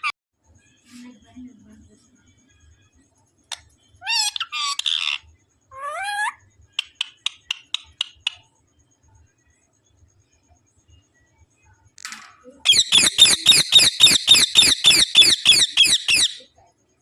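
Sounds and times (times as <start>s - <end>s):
parrot squawking: 4.0s - 5.2s, 5.8s - 7.1s, 12.7s - 16.5s.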